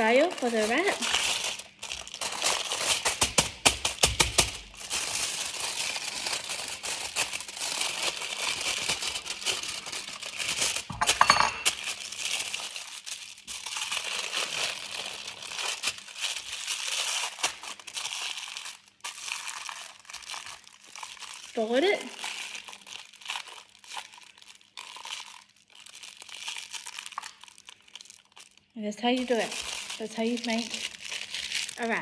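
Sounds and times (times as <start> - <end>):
wrapping material crinkling: 0.0 - 32.0.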